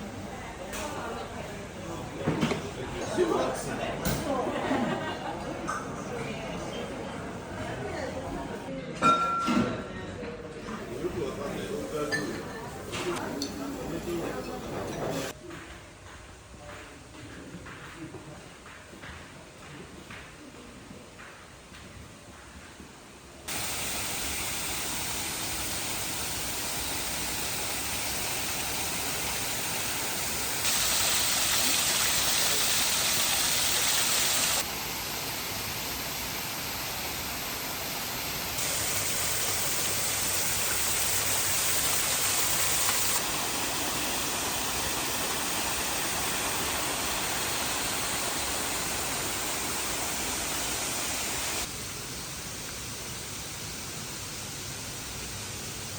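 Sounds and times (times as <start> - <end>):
rushing water: 23.5 - 51.7.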